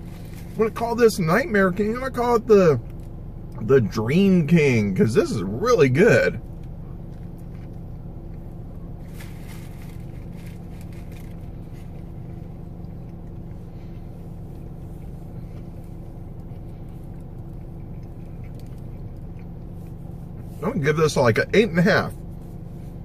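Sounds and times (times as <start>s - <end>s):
car engine idling: 0.0s - 23.0s
soft chewing: 6.4s - 20.6s.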